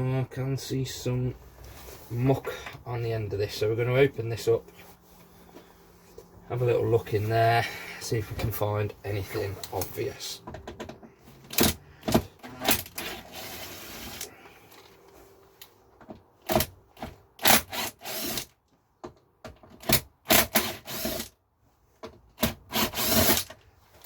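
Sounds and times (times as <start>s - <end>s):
clicks and knocks on plastic housing: 10.4s - 13.0s.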